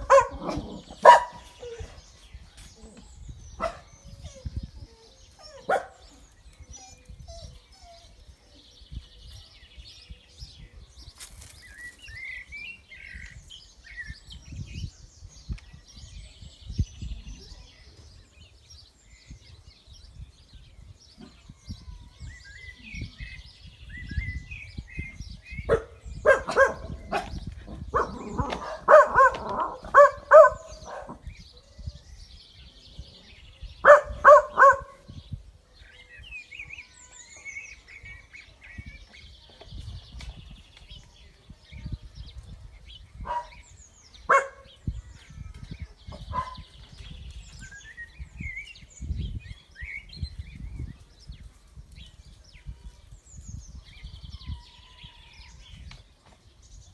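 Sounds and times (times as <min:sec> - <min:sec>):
dog barking: 0:00.0 - 0:01.6, 0:03.6 - 0:03.9, 0:05.6 - 0:06.1, 0:25.7 - 0:31.2, 0:33.8 - 0:35.0, 0:43.2 - 0:43.6, 0:44.3 - 0:44.7, 0:46.3 - 0:46.6
small birds chirping: 0:00.0 - 0:56.9.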